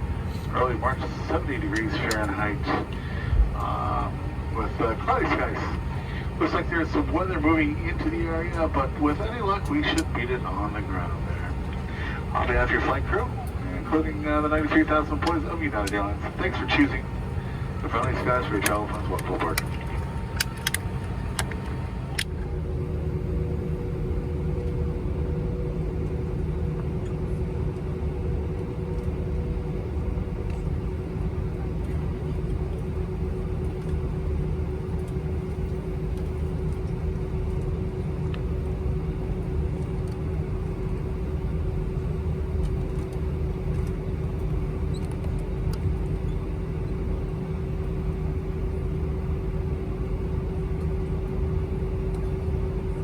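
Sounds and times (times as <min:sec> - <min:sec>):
higher hum: 0:00.0 - 0:23.7
low rumble inside aircraft cabin: 0:00.0 - 0:53.0
steady mechanical hum: 0:00.0 - 0:53.0.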